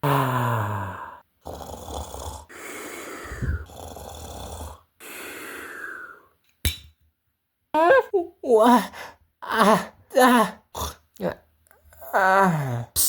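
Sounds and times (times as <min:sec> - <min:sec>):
person snoring: 0:00.0 - 0:06.3.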